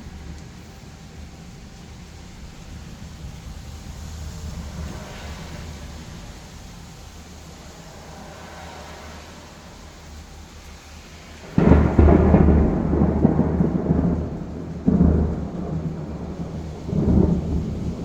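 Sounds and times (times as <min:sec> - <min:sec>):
steady rain hiss: 0:00.0 - 0:18.0
thunder clap and rumbling: 0:11.4 - 0:18.0.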